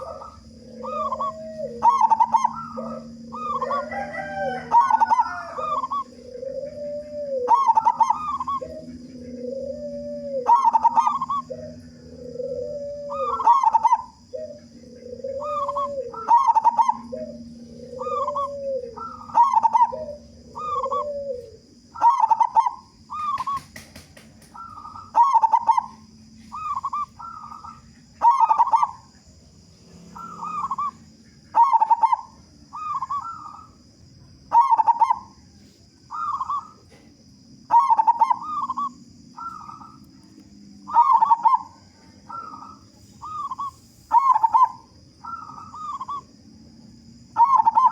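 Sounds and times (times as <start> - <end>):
lower-pitched cooing: 0.0 - 23.6, 30.0 - 33.8, 37.7 - 40.3, 40.9 - 46.4
doves cooing: 0.0 - 47.9
faint high whine: 0.0 - 47.9.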